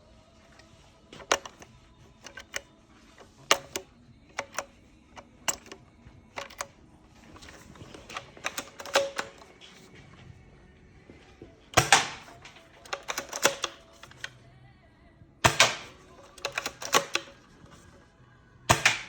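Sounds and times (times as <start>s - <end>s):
airsoft rifle clicks and clacks: 1.2s - 9.9s, 11.8s - 14.4s, 15.5s - 17.9s, 18.7s - 19.0s.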